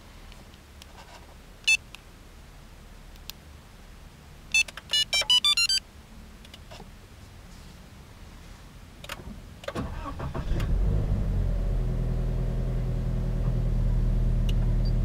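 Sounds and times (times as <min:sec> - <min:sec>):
remote transmitter beeps: 0:04.5 - 0:05.8.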